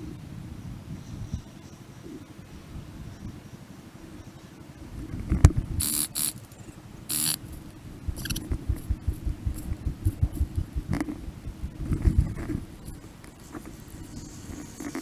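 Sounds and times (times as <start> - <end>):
high-pitched hissing bursts: 5.8 - 7.5, 12.8 - 15.0
low thuds and rustling: 8.0 - 15.0.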